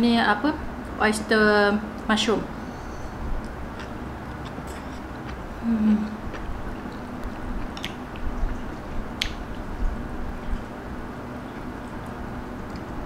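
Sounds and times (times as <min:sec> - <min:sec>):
chewing noodles: 0:03.4 - 0:09.8.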